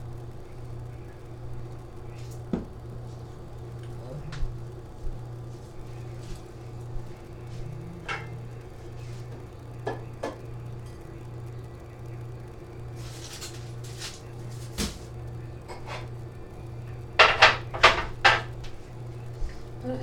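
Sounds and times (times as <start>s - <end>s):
steady low hum: 0.0s - 20.0s
dishes clinking: 8.0s - 8.6s, 17.2s - 18.5s.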